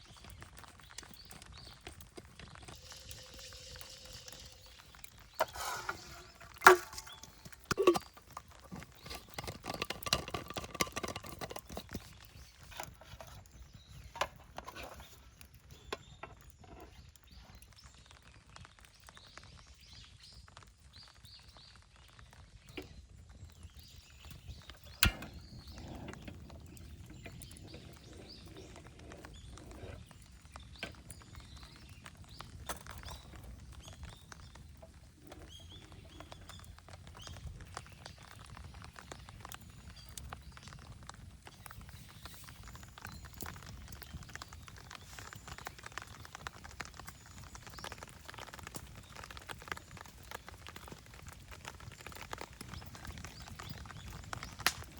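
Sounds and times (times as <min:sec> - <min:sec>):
rattling and rustling: 0:05.3 - 0:13.4
cookware clinking and knocking: 0:05.4 - 0:08.2, 0:08.8 - 0:12.0.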